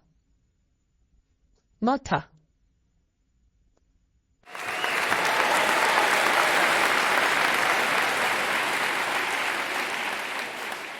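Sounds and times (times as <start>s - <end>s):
crowd clapping: 4.5s - 10.9s.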